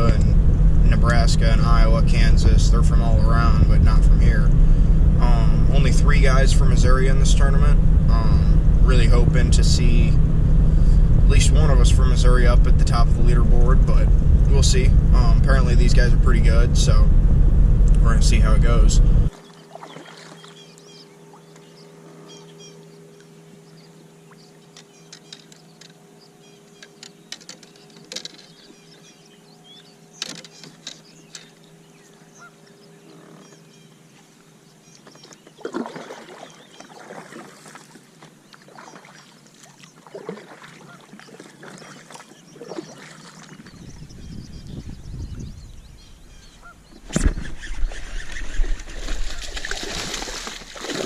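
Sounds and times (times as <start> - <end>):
faint steady hum: 0.0 - 47.1
geese honking: 32.3 - 33.2, 40.8 - 41.2, 46.0 - 49.7.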